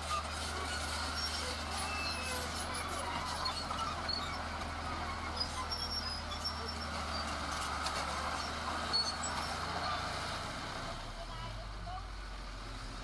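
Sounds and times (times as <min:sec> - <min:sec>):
machinery working noise: 0:00.0 - 0:10.8
heavy machinery engine humming: 0:00.0 - 0:13.0.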